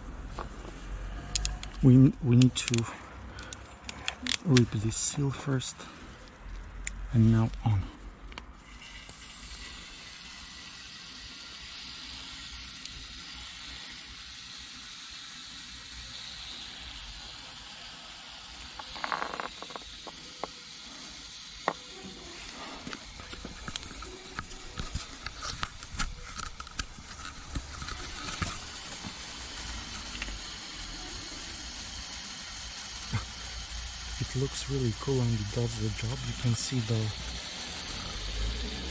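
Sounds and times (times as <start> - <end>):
irregular crackling clicks: 1.3 - 4.8, 22.9 - 30.5
aerosol foam hissing: 8.6 - 38.9.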